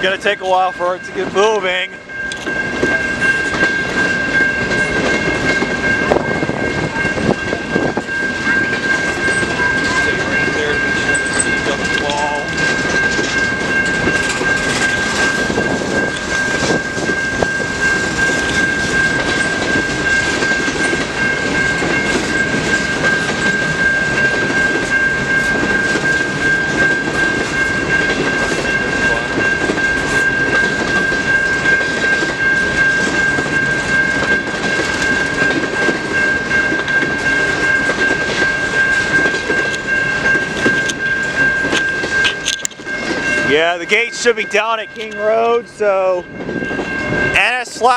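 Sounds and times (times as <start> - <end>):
electronic crossing bell ringing: 0.0 - 47.9
freight train cars rolling: 0.0 - 47.9
wheels clicking over rail joints: 1.3 - 47.2.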